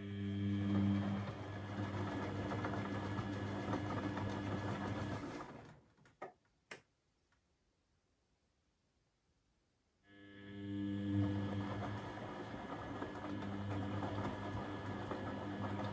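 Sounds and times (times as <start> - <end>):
washing machine whirring: 0.0 - 6.3, 10.2 - 15.9.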